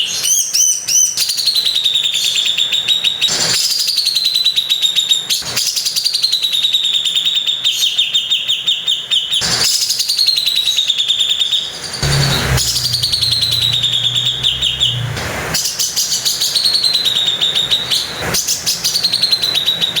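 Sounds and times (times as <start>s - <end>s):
low hum: 12.0s - 15.8s.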